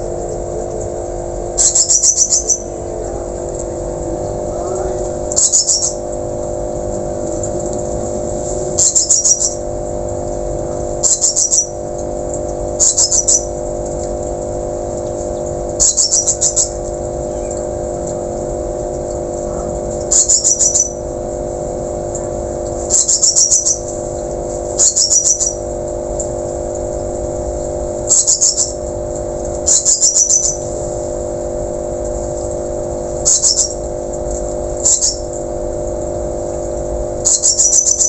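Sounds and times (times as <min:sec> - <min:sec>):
steady low hum: 0:00.0 - 0:38.0
whistling thrush calling: 0:01.6 - 0:02.7, 0:20.1 - 0:21.0, 0:24.8 - 0:25.6, 0:29.7 - 0:30.6, 0:37.3 - 0:38.0.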